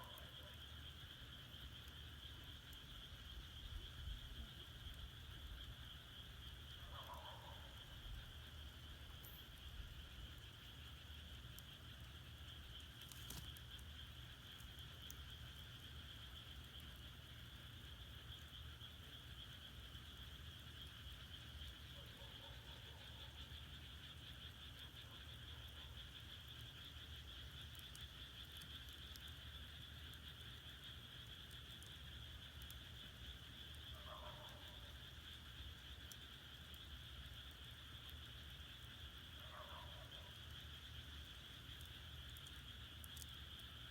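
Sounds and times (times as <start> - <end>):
frogs croaking: 0.0 - 43.9
firewood crackling: 12.8 - 16.0.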